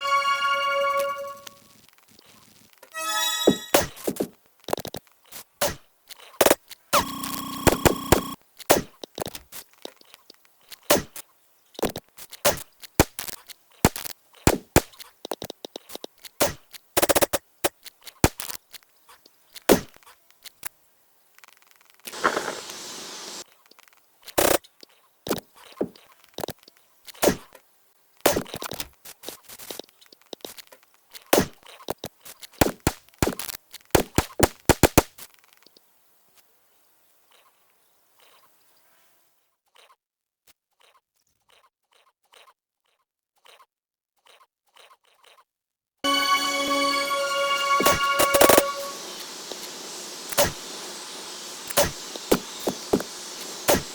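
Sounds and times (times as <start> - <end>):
brief hiss: 22.1 - 23.4, 46.1 - 53.9.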